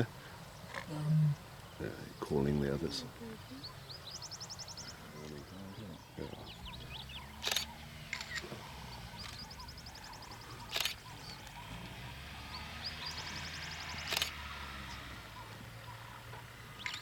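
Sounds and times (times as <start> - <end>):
bird or insect trills: 0.0 - 17.0
sharp clicks: 7.4 - 12.0, 13.7 - 14.8, 16.8 - 17.0.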